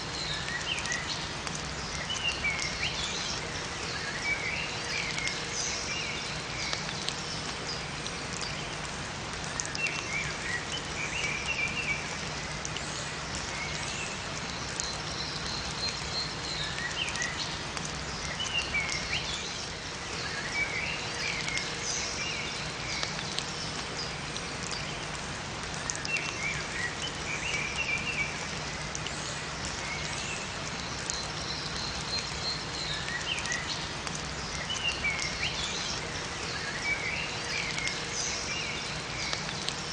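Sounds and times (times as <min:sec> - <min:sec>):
rain pattering: 0:00.0 - 0:39.9
small birds chirping: 0:09.4 - 0:39.9.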